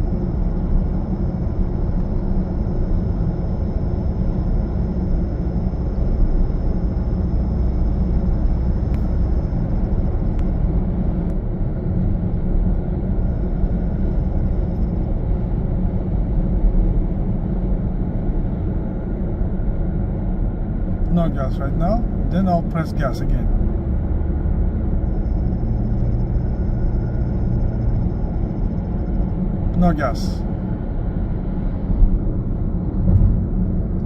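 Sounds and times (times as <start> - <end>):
car engine and road rumble: 0.0 - 34.0
faint high whine: 24.9 - 30.6.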